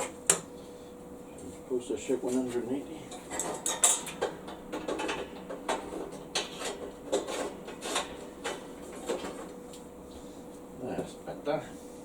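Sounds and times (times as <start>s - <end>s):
metal parts clicking and clunking: 3.1s - 9.5s.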